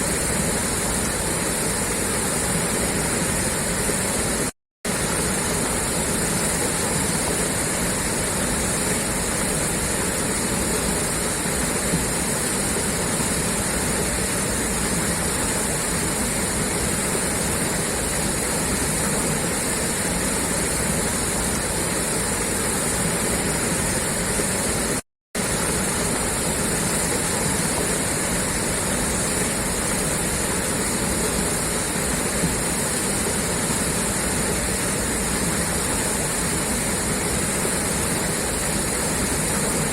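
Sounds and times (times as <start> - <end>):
water gushing from pipe: 0.0 - 39.9.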